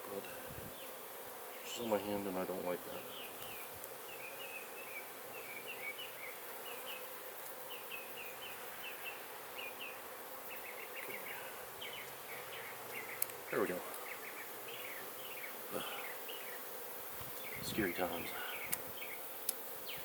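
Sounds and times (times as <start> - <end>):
honey bees buzzing: 0.0 - 20.0.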